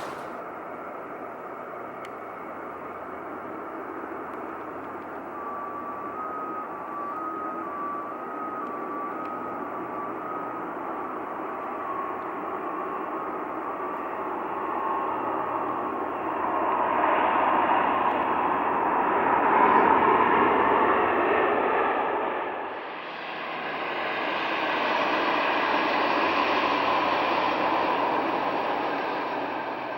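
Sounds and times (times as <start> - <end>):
jet engine rushing: 0.0 - 0.4.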